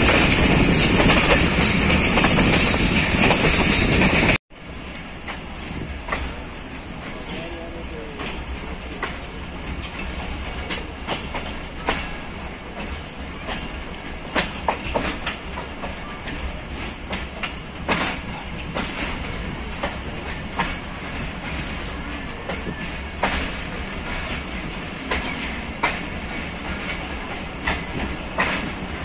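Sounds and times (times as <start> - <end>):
wheels clacking over rail joints: 0.0 - 29.0
wheels rumbling on rail: 0.0 - 29.0.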